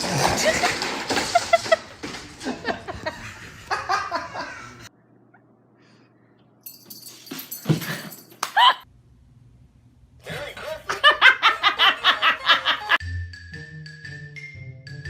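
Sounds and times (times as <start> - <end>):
person laughing hard: 0.0 - 4.9, 8.4 - 8.8, 10.6 - 13.0.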